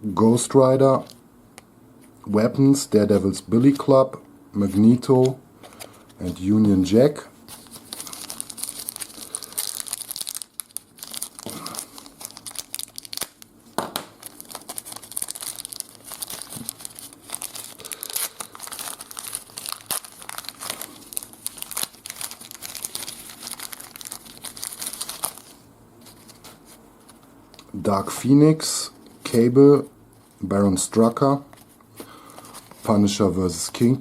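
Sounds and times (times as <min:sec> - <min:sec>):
wrapper tearing and crinkling: 0:07.5 - 0:27.7.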